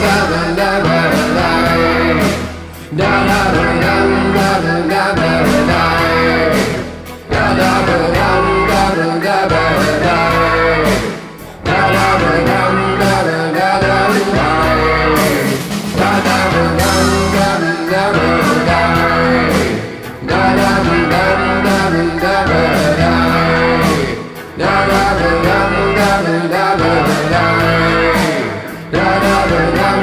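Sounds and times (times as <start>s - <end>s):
bass line: 0.0s - 30.0s
guitar: 0.0s - 30.0s
rock band playing: 0.0s - 30.0s
drum beat: 14.1s - 30.0s.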